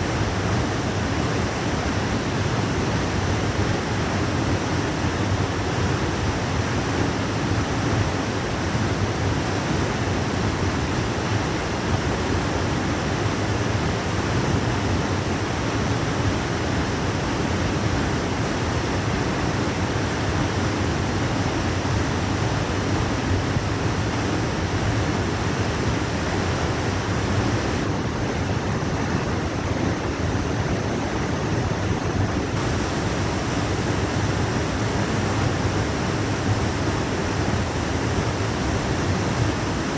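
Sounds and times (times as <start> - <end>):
waterfall rushing: 27.4 - 39.9.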